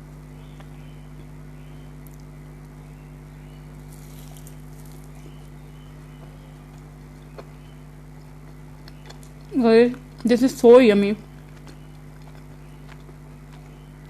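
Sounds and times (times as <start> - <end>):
low electrical hum: 0.0 - 14.0
chewing food: 3.8 - 14.0
crunchy clicks: 11.3 - 14.0.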